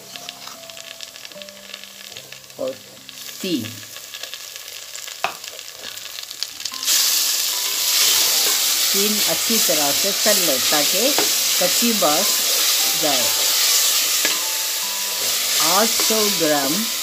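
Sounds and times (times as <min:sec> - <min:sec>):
onions frying in hot oil: 0:00.0 - 0:17.0
spatula stirring and scraping pot: 0:12.2 - 0:14.4.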